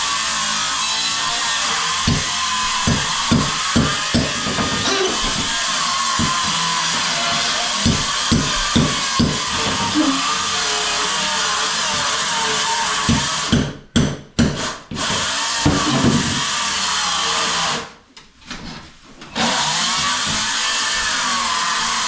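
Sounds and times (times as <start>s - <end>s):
power tool running: 0.0s - 13.6s, 19.4s - 22.0s.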